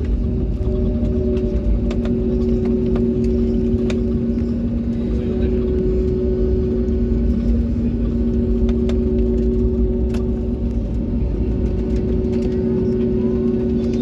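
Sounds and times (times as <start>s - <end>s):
aircraft engines droning: 0.0s - 14.0s
constant hum tones: 0.0s - 14.0s
loud low rumble: 0.0s - 14.0s.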